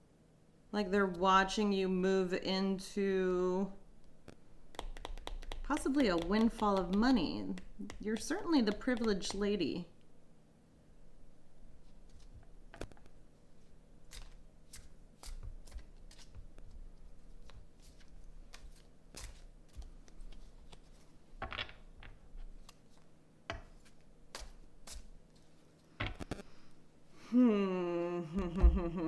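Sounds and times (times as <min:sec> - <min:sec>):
cards being shuffled: 0:04.8 - 0:09.4, 0:12.0 - 0:13.1, 0:14.1 - 0:26.5.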